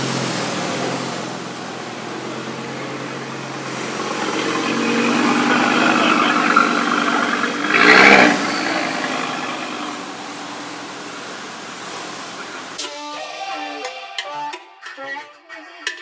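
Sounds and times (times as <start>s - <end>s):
loud engine burst: 0.0s - 10.8s
car engine passing slowly: 0.0s - 12.7s.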